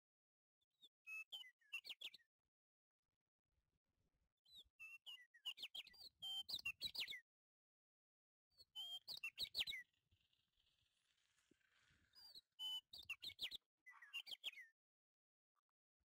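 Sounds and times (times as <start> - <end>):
small bird chirping: 0.8 - 2.3, 4.5 - 7.2, 8.6 - 14.8.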